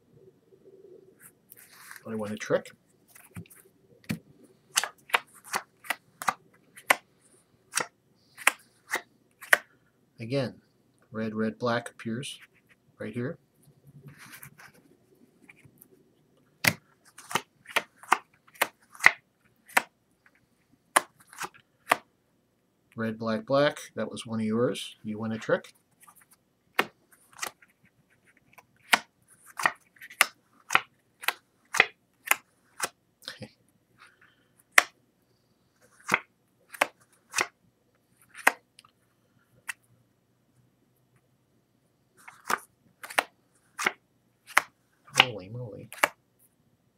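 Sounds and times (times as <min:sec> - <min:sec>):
cards rustling: 0:01.5 - 0:09.7, 0:16.6 - 0:22.1, 0:25.3 - 0:33.0, 0:35.8 - 0:38.6, 0:42.2 - 0:46.2.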